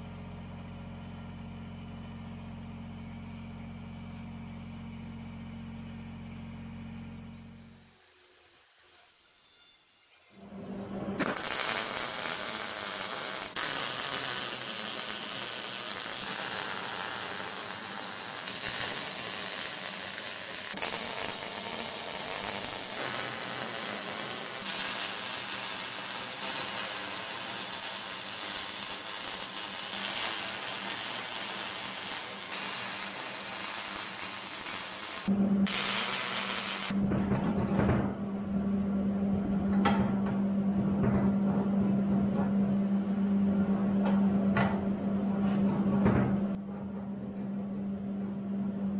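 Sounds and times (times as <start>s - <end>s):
welding crackle: 11.2s - 37.0s.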